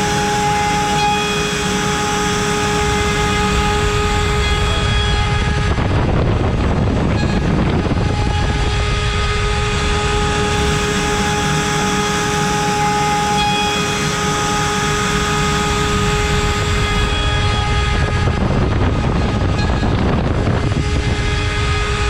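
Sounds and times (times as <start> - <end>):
router milling wood: 0.0 - 5.1, 10.2 - 17.3
router spindle whine: 0.0 - 22.0.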